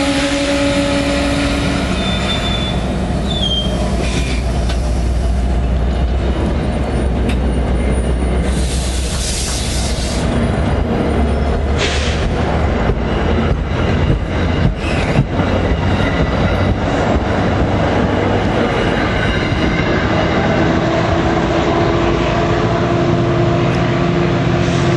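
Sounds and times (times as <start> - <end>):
low locomotive hum: 0.0 - 24.9
train wheels clicking over rail joints: 3.4 - 20.3.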